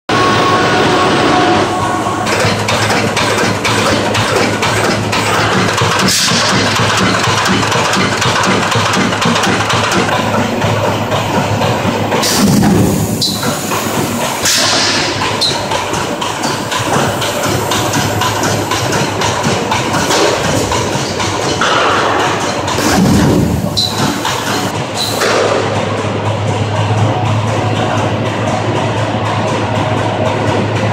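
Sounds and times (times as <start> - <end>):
welding machine humming: 0.4 - 21.5, 22.7 - 25.1
machine clicks and knocks: 2.3 - 30.9.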